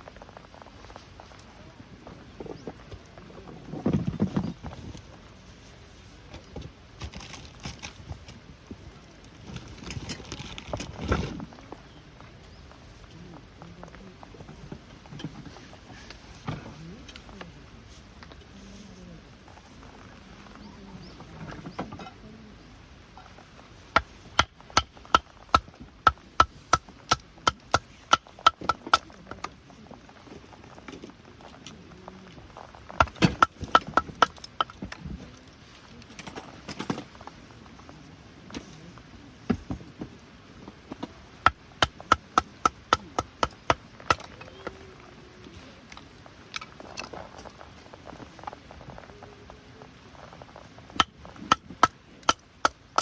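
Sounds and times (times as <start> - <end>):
scattered knocks: 33.0 - 34.8
sharp knocks: 33.0 - 34.8, 41.5 - 44.2.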